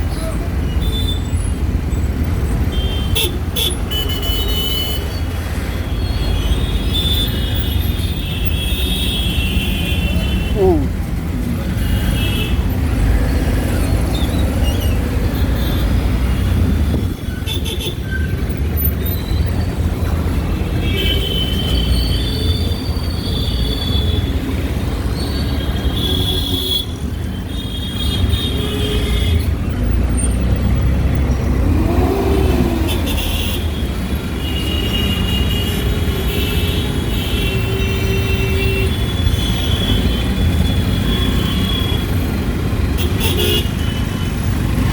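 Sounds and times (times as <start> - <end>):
engine and road rumble: 0.0 - 44.9
vehicle horns beeping: 2.7 - 5.3, 32.9 - 44.8.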